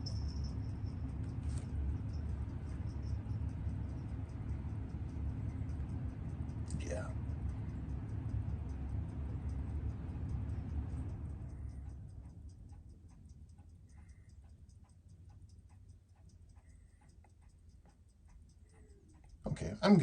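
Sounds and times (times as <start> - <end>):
low rumbling noise: 0.0 - 14.2
watch ticking: 0.0 - 20.0.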